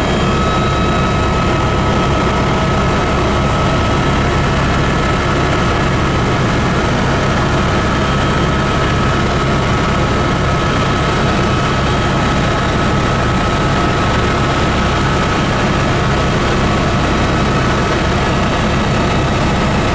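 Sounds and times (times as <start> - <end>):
helicopter engine and rotor: 0.0 - 19.9.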